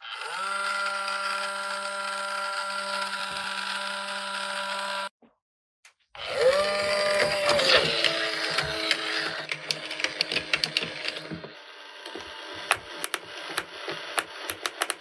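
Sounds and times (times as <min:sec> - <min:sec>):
toy motor whirring: 0:00.0 - 0:05.1, 0:06.3 - 0:15.0
clattering and clicks: 0:12.1 - 0:15.0.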